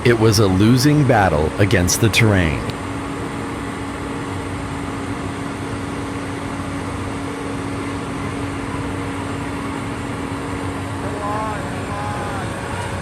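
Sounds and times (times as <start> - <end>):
excavator diesel engine running: 0.0 - 2.7.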